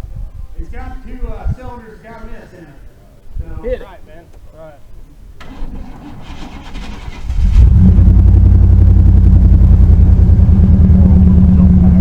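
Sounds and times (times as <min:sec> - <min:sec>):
truck engine cranking and idling: 0:05.4 - 0:12.0.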